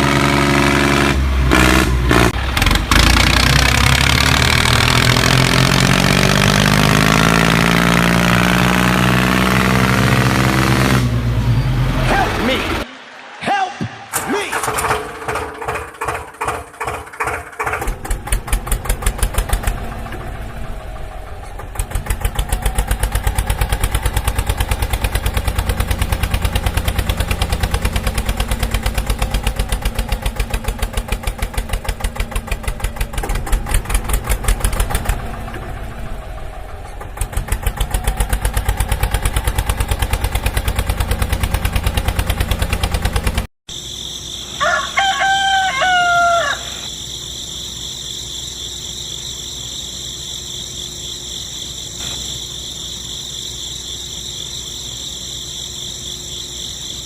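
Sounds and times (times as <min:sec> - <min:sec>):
small tractor engine popping: 0:14.5 - 0:43.5
rooster crowing: 0:44.5 - 0:47.0.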